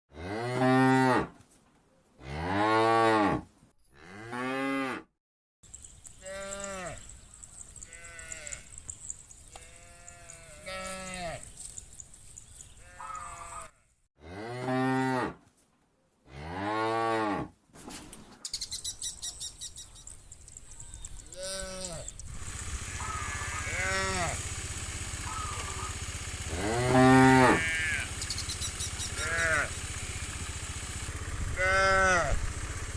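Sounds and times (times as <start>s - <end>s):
cows mooing: 0.2s - 1.3s, 6.2s - 11.5s, 12.8s - 15.4s, 21.3s - 28.2s, 28.9s - 29.9s, 31.5s - 32.5s.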